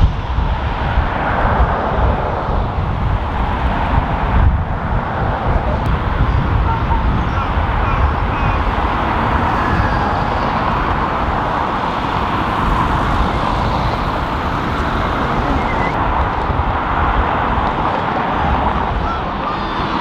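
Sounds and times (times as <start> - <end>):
wind buffeting microphone: 0.0 - 20.0
jet engines roaring: 5.8 - 18.8.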